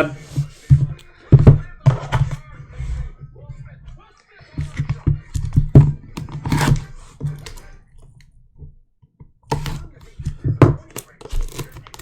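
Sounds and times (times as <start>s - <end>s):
card packs clicking and knocking: 9.5s - 12.0s.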